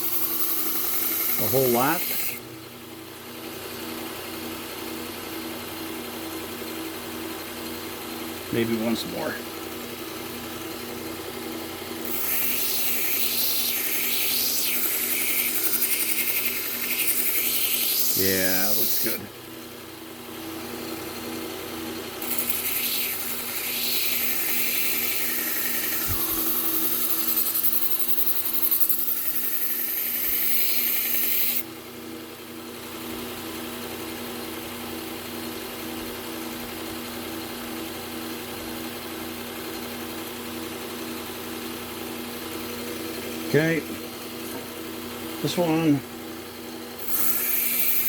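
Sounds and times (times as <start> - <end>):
knife grinding on abrasive belt: 0.0 - 2.4, 12.0 - 19.2, 22.2 - 31.6, 47.0 - 48.0
sharpener motor running: 0.0 - 2.5, 8.8 - 19.4, 22.0 - 31.8, 46.8 - 48.0.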